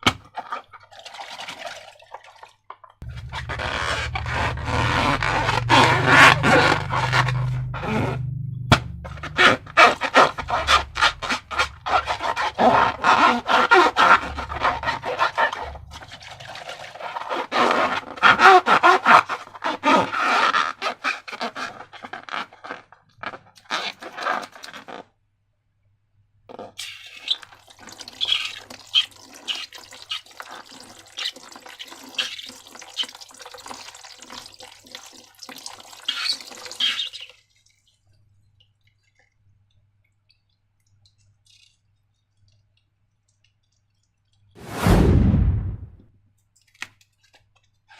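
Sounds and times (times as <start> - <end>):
wet slime squishing and crackling: 8.8 - 18.5.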